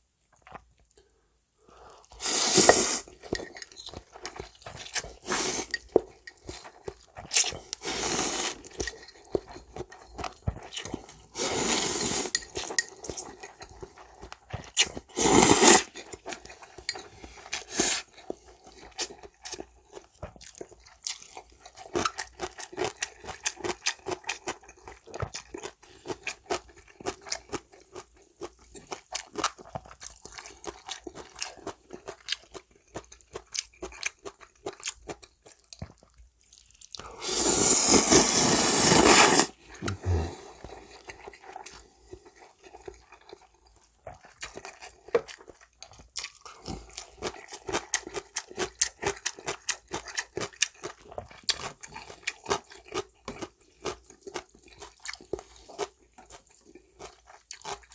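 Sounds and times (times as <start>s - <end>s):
noodle slurping: 2.0s - 3.2s, 4.7s - 6.0s, 7.2s - 9.6s, 11.0s - 12.8s, 13.8s - 16.0s, 37.0s - 42.0s
crunchy chewing: 2.0s - 57.9s.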